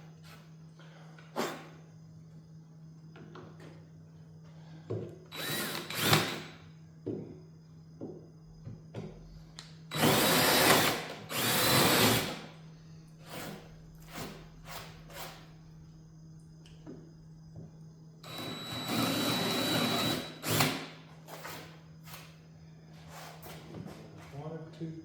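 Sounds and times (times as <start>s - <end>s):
power drill drilling into wood: 5.3s - 6.6s, 9.9s - 12.4s, 18.2s - 21.7s.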